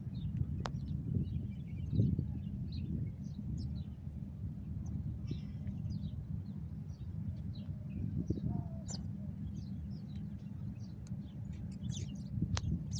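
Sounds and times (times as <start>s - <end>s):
steady low rumble: 0.0s - 12.9s
small birds chirping: 4.8s - 12.9s.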